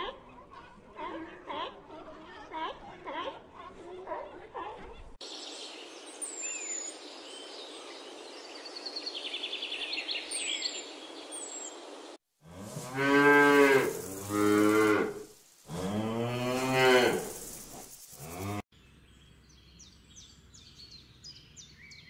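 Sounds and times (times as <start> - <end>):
steady hiss: 11.2 - 18.6
cow mooing: 12.5 - 17.3.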